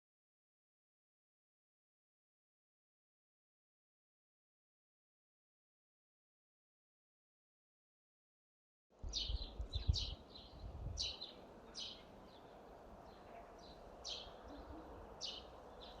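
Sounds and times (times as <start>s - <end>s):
small birds chirping: 9.0s - 16.0s.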